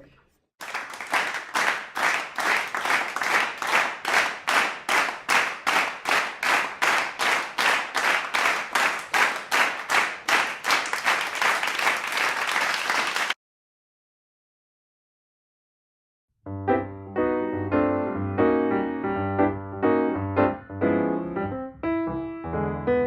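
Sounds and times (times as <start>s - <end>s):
hands clapping: 0.6s - 13.4s.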